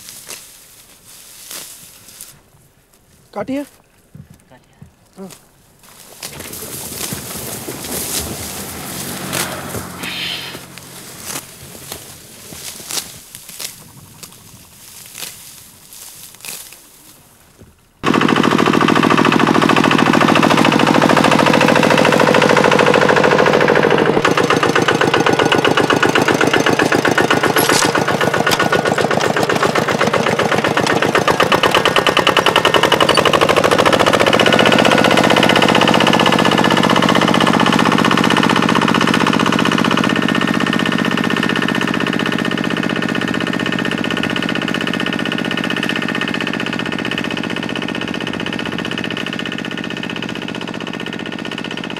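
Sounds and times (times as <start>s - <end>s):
small engine chugging: 5.2s - 15.6s, 18.0s - 51.9s.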